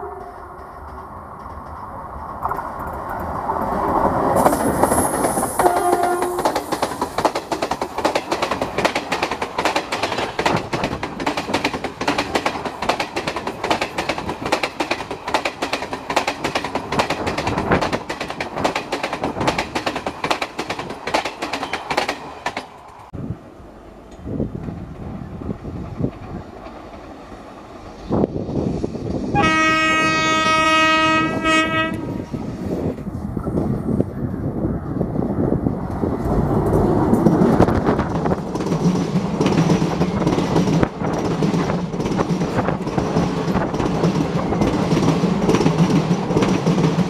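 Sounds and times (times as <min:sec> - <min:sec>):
train horn: 0:00.0 - 0:00.8, 0:05.6 - 0:06.6, 0:29.3 - 0:32.6
train passing: 0:00.0 - 0:47.0
wheels clicking over rail joints: 0:00.1 - 0:23.1, 0:35.8 - 0:47.0.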